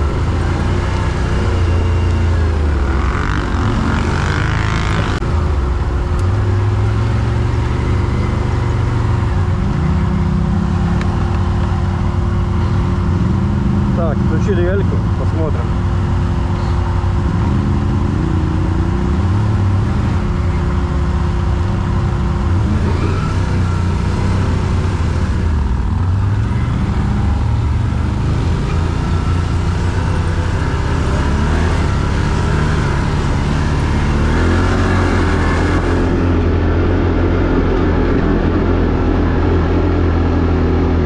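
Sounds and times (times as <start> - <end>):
quad bike engine running: 0.0 - 41.0.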